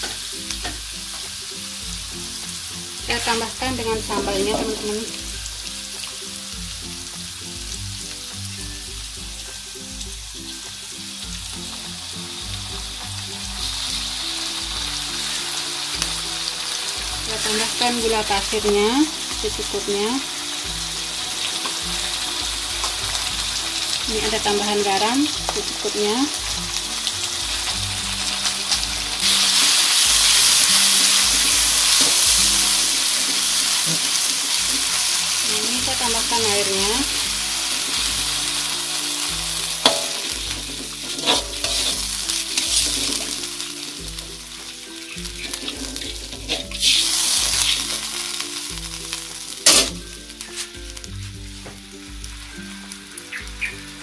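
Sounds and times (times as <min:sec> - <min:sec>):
background music with bass: 0:00.0 - 0:54.0
shallots sizzling in hot oil: 0:00.0 - 0:54.0
metal spatula stirring in wok: 0:39.8 - 0:43.4, 0:44.6 - 0:48.1, 0:49.6 - 0:50.7.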